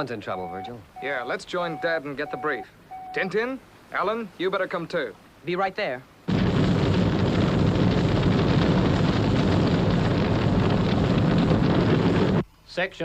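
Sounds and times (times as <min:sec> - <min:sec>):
large fire rushing roar: 0:06.3 - 0:12.4.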